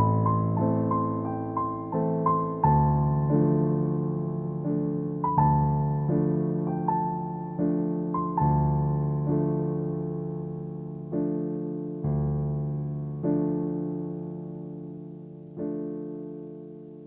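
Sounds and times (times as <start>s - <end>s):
soft piano chords: 0.0s - 17.0s.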